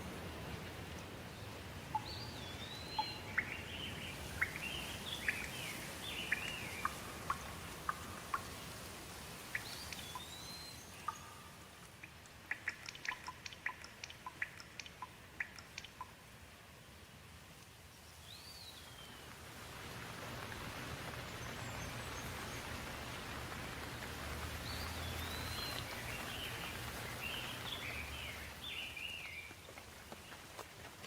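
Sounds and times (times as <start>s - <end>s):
rain falling: 0.0s - 31.0s
bird calling and chirping: 1.9s - 8.6s, 9.5s - 16.1s, 24.7s - 29.5s.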